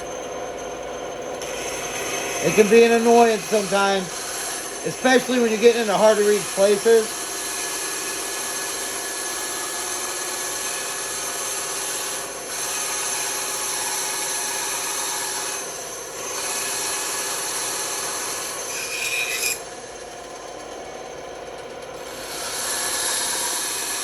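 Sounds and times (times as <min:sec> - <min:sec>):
band saw cutting wood: 0:00.7 - 0:24.0
squeal from saw cut: 0:17.6 - 0:19.7.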